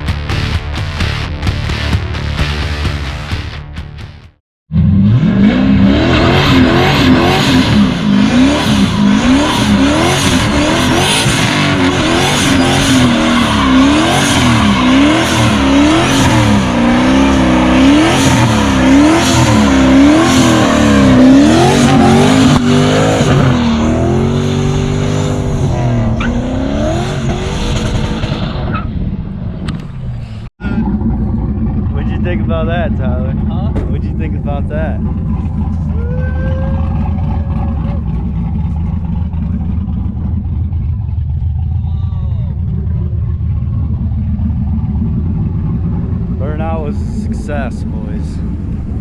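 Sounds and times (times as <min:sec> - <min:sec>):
car engine revving: 0:04.7 - 0:49.0
tyres spinning and squealing: 0:11.8 - 0:18.1.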